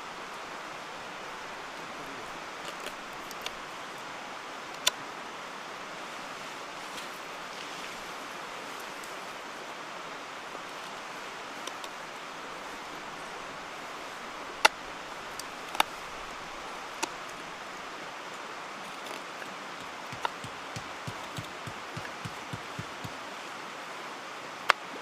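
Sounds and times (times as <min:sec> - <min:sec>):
mountain stream rushing: 0:00.0 - 0:25.0
sharp clicks: 0:19.8 - 0:23.2.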